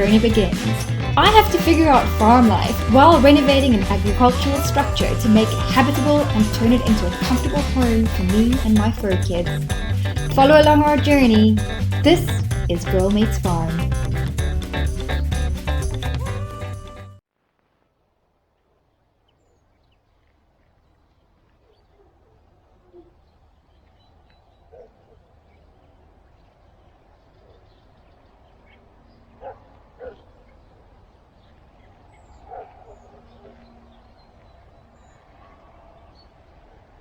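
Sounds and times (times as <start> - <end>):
distant animal calls: 21.5 - 37.0.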